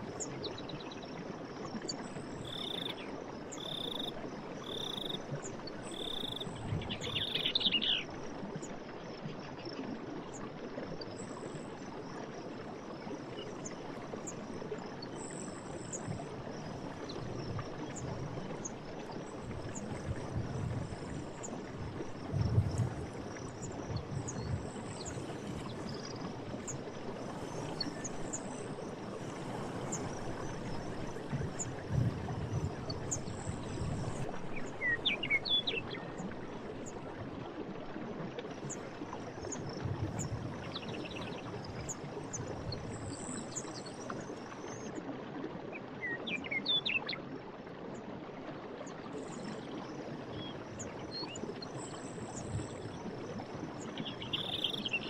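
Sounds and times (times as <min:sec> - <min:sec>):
water gurgling: 0:00.0 - 0:46.2
stream running: 0:00.0 - 0:55.0
birds chirping: 0:54.1 - 0:55.0.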